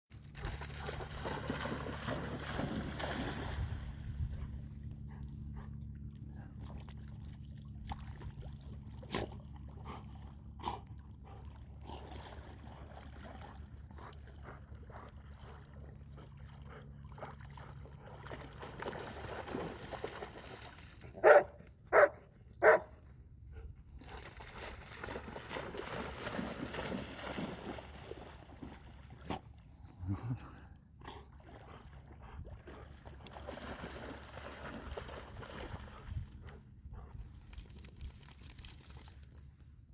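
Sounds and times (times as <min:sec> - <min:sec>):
steady low hum: 0:00.1 - 0:39.9
dog barking: 0:21.2 - 0:22.9.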